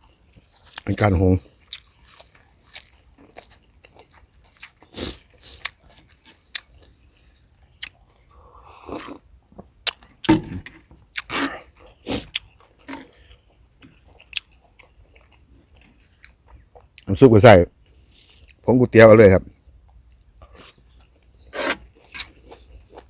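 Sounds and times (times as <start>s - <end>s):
person chewing food: 1.6s - 10.3s, 11.1s - 17.1s, 20.4s - 23.0s.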